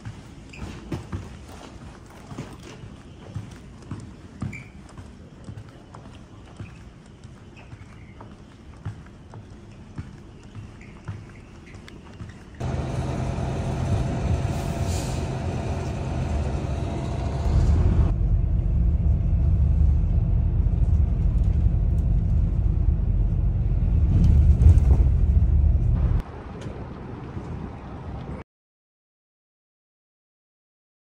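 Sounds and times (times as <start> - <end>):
large engine rumbling: 12.6 - 27.0.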